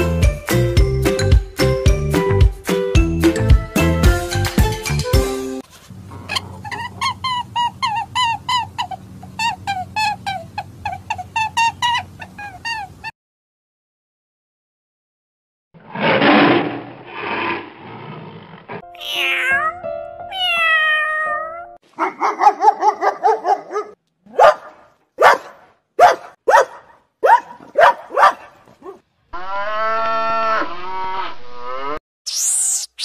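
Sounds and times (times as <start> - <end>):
wavering high-pitched animal calls: 6.3 - 13.1, 18.9 - 19.8
tiger growling: 15.9 - 18.8
dogs barking: 21.9 - 29.0.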